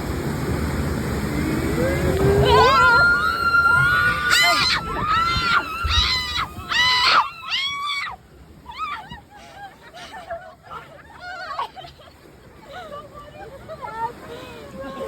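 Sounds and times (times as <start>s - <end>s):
people screaming on a ride: 1.2s - 12.0s.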